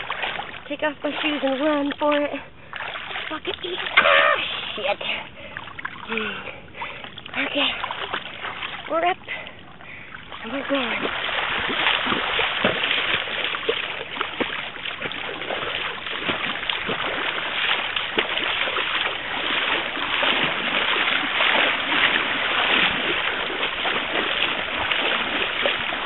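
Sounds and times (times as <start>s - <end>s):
water splashing under bicycle: 0.0s - 26.0s.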